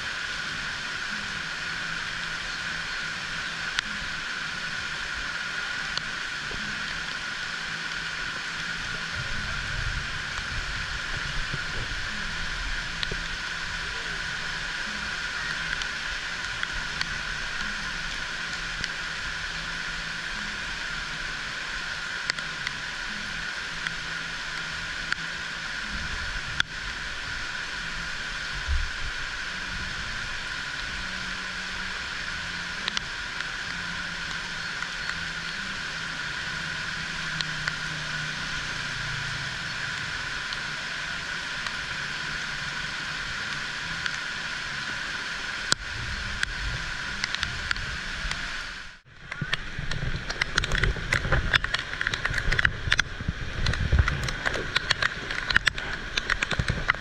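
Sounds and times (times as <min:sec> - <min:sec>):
heavy rain hissing: 0:00.0 - 0:57.0
sharp drip clicks: 0:49.3 - 0:57.0.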